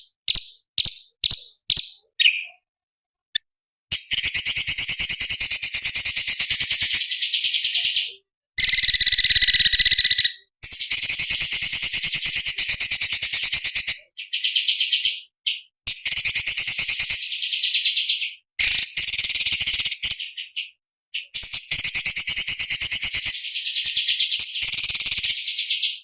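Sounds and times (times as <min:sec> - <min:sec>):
bird singing trilled phrases: 0:00.0 - 0:02.7, 0:03.9 - 0:26.0.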